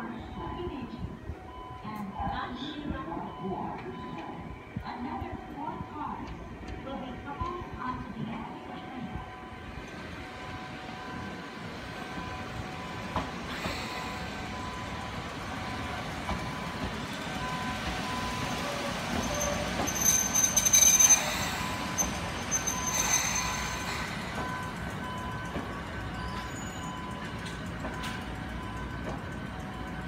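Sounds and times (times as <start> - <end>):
electric train rolling: 5.6 - 30.0
train wheels squealing: 17.4 - 30.0.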